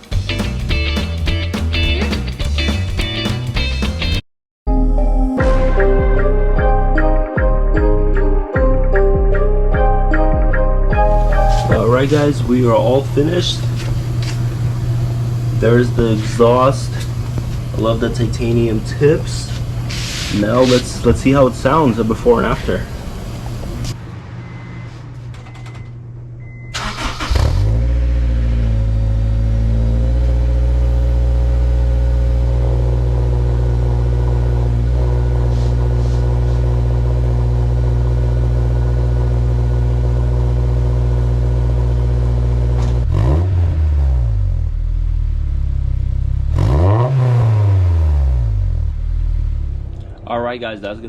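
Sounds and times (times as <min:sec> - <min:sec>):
car engine starting and idling: 0:07.8 - 0:51.0
car engine revving: 0:11.0 - 0:24.6, 0:26.8 - 0:50.2.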